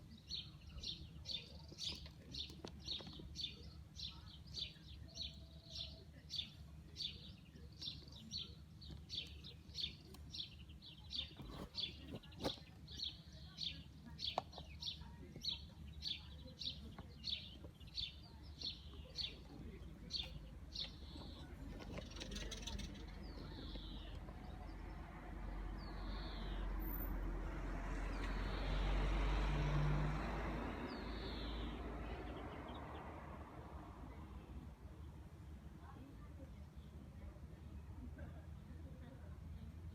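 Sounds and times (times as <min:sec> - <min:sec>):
small birds chirping: 0:00.0 - 0:39.9
low engine hum: 0:06.9 - 0:36.5
vehicle passing by: 0:24.4 - 0:34.6.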